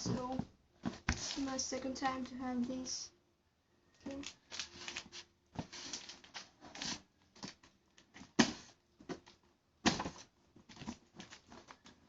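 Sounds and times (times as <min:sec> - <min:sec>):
packaging rustling and scraping: 0:00.1 - 0:01.6, 0:04.1 - 0:12.0.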